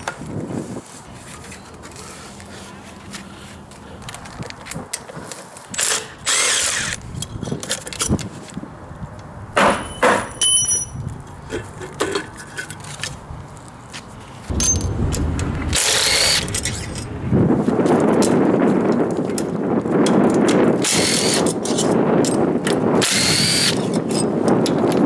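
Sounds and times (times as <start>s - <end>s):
clinks of tools and metal parts: 9.6s - 12.8s.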